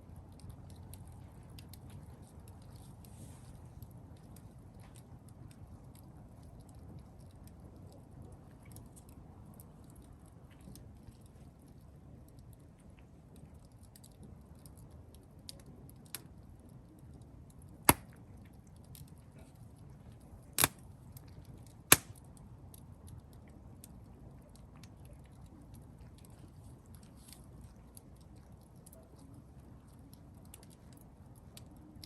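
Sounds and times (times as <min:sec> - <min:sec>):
campfire crackling: 0:00.1 - 0:07.7, 0:08.6 - 0:32.0
burning wood popping: 0:17.9 - 0:19.1, 0:20.6 - 0:22.4.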